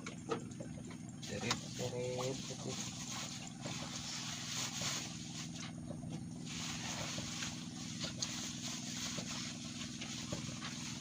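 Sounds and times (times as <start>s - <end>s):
small engine humming: 0.0s - 11.0s.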